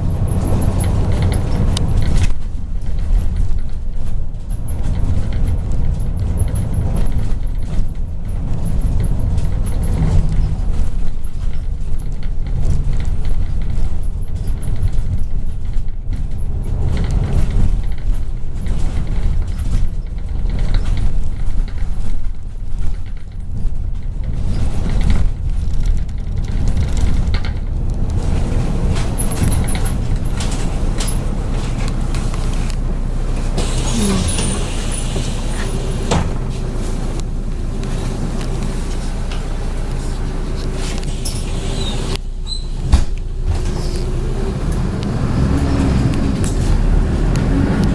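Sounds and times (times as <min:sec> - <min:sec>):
bus engine and road rumble: 0:00.0 - 0:47.9
air hiss: 0:33.6 - 0:36.2.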